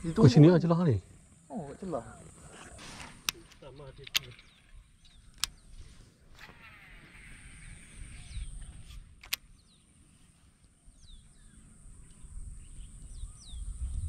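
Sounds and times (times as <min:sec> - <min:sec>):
wind rumbling on microphone: 0:02.2 - 0:09.7, 0:10.9 - 0:14.0
sharp click: 0:02.8 - 0:06.6, 0:08.6 - 0:09.6
short falling bird chirps: 0:04.1 - 0:10.1.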